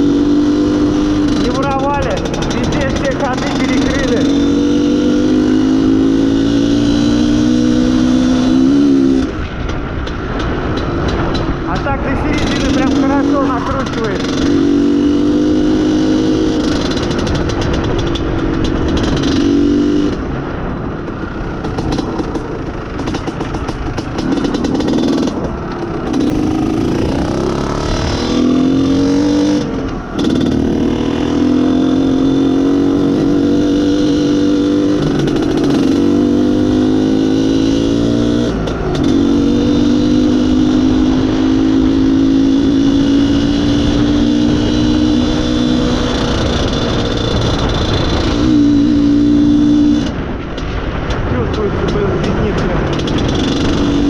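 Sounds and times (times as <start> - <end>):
two-stroke motorcycle accelerating: 0.0 - 54.0.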